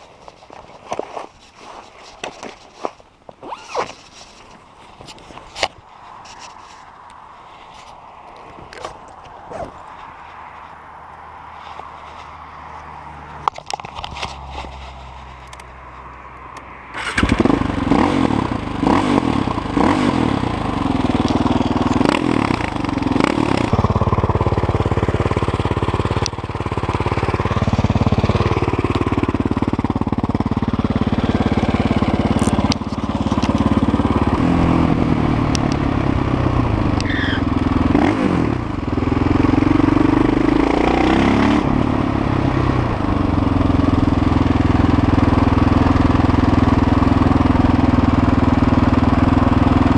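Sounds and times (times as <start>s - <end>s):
motorcycle engine revving: 16.9s - 49.9s.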